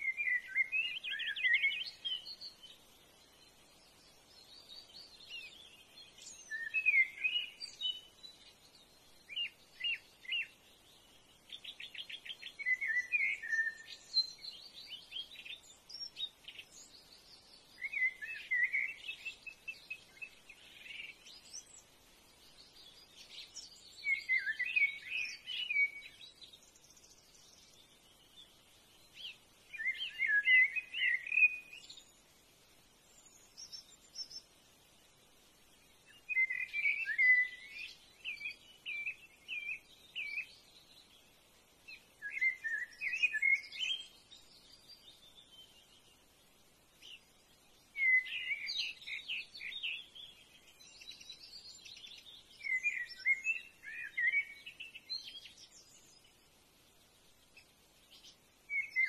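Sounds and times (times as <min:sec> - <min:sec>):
birds singing and chirping: 0:00.0 - 0:32.3, 0:33.0 - 0:34.6, 0:35.8 - 0:46.3, 0:46.9 - 0:56.6, 0:57.5 - 0:59.0.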